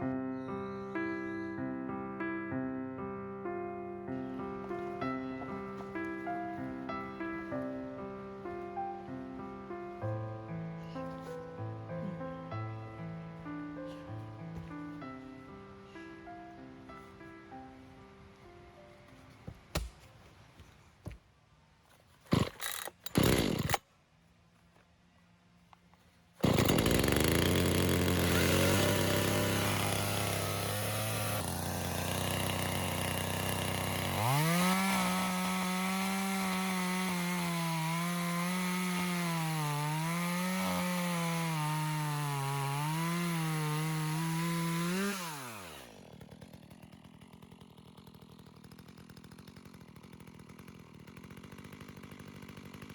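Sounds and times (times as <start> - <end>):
chainsaw engine running: 4.7 - 9.0, 22.3 - 23.8, 26.4 - 52.9.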